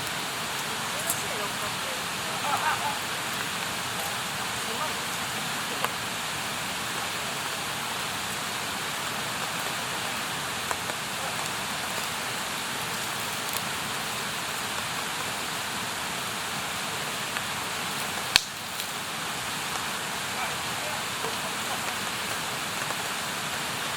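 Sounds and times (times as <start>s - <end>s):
campfire crackling and hissing: 0.0s - 23.9s
sharp pop from fire: 18.1s - 19.0s.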